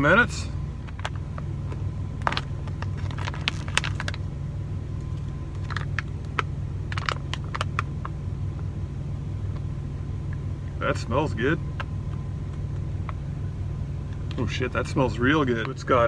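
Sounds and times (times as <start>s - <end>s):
truck engine idling: 0.0s - 16.0s
plastic pouch crinkling: 0.9s - 4.3s, 5.1s - 7.9s.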